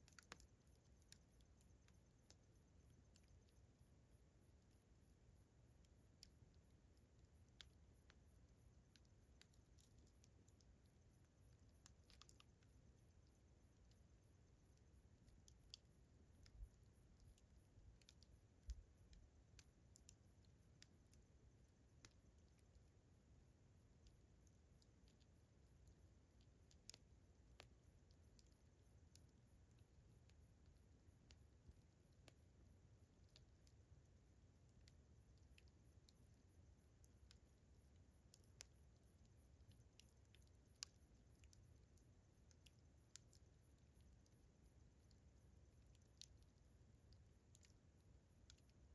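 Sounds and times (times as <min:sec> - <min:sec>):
crickets chirping: 0:00.0 - 0:48.9
campfire crackling and popping: 0:00.1 - 0:02.4, 0:07.2 - 0:12.7, 0:14.7 - 0:22.9, 0:23.9 - 0:36.3.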